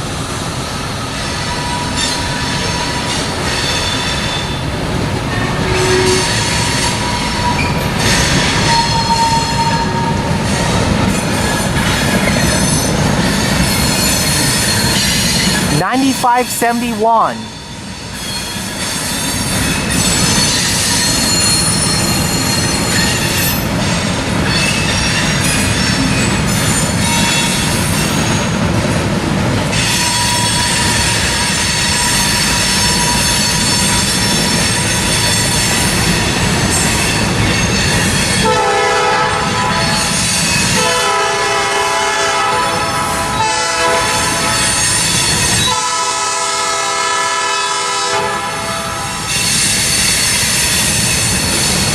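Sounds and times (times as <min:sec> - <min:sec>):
freight train rolling by: 0:00.0 - 0:51.9
train wheels squealing: 0:00.8 - 0:15.7, 0:17.5 - 0:28.6, 0:29.8 - 0:38.7, 0:39.4 - 0:40.9, 0:44.2 - 0:45.8, 0:49.2 - 0:51.9
locomotive horn blasts: 0:05.3 - 0:06.6, 0:38.4 - 0:40.0, 0:40.8 - 0:44.8, 0:45.7 - 0:49.2.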